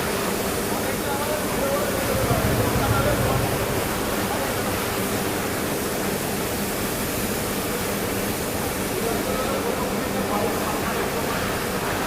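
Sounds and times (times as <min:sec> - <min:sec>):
faint steady hum: 0:01.6 - 0:05.5.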